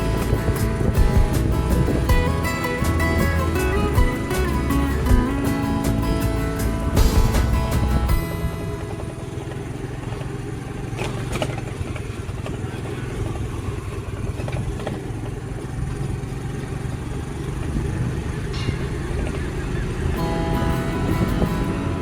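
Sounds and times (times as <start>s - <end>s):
music: 0.0s - 9.3s, 20.2s - 22.0s
vehicle engine and road noise: 0.0s - 22.0s.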